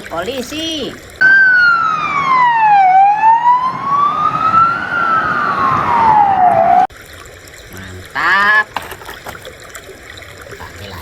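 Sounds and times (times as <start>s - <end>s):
police siren wailing: 1.2s - 6.9s.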